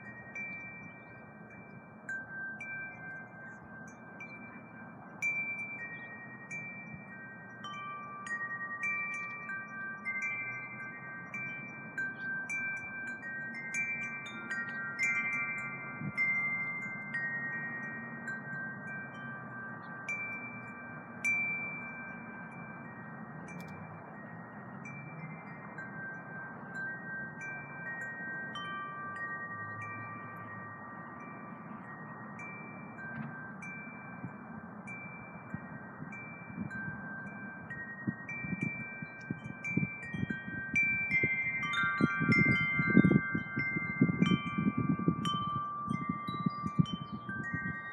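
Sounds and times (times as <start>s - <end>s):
low wind rumble: 0.0s - 47.9s
wind chimes ringing: 0.0s - 47.9s.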